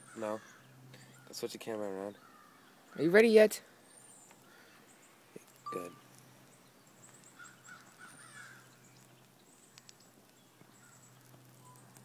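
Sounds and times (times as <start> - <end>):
distant crow cawing: 0.0 - 1.4, 2.1 - 3.2, 4.3 - 5.0, 7.3 - 8.7.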